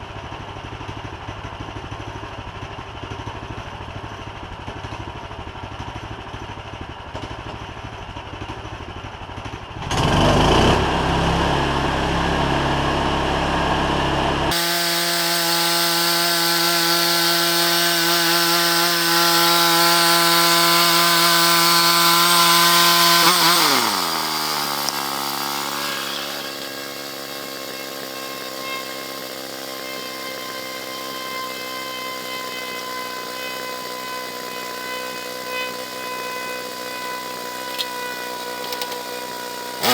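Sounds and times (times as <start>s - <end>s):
band sawmill cutting wood: 9.9s - 39.9s.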